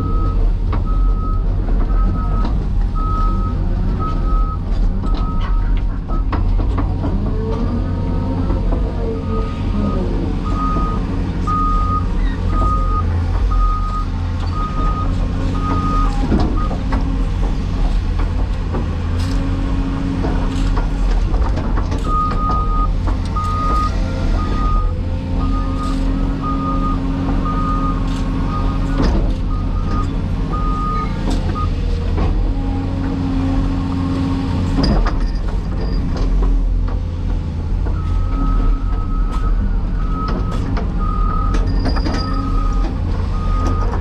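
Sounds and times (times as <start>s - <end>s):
excavator diesel engine running: 0.0s - 44.0s
warning alarm beeping: 22.2s - 28.9s.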